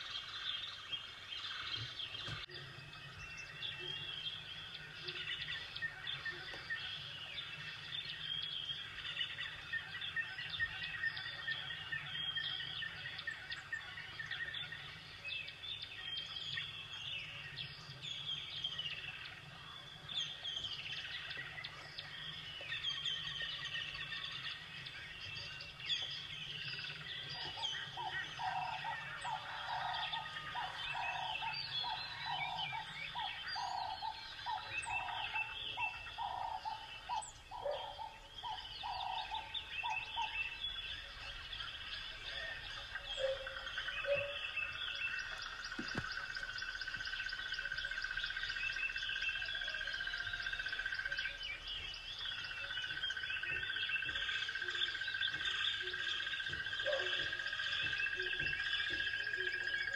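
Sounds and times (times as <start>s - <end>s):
lower repeated bird notes: 0.0s - 59.9s
small birds chirping: 0.0s - 59.9s.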